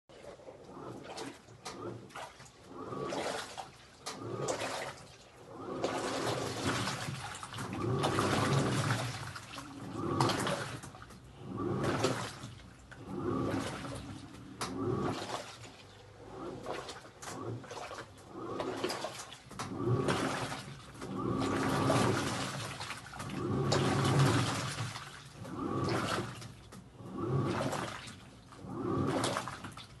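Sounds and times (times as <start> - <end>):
washing machine water sloshing: 0.1 - 30.0
low motor tone: 5.4 - 22.6, 23.2 - 24.7.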